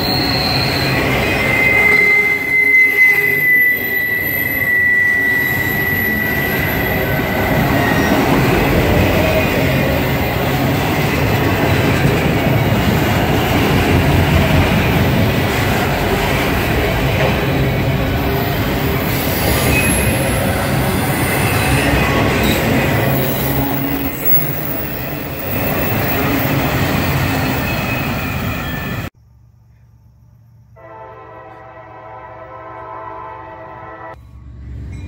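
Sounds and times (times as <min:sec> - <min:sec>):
wheel squeal: 0:00.0 - 0:10.6, 0:17.3 - 0:29.1
train wheels rumbling on rail: 0:00.0 - 0:29.1.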